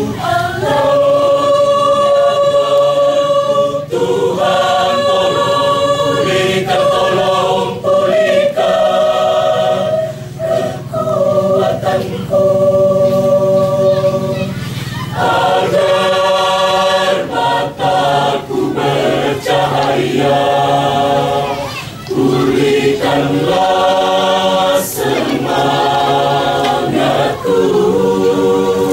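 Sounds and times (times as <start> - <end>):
choir singing sustained chords: 0.0 - 28.9
singers breathing: 10.0 - 10.4, 14.5 - 15.1.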